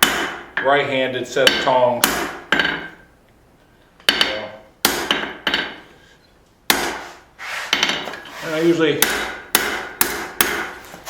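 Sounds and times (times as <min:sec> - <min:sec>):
hammer striking steel on anvil: 0:00.0 - 0:00.7, 0:01.4 - 0:03.0, 0:04.1 - 0:05.8, 0:06.7 - 0:07.0, 0:09.0 - 0:10.8.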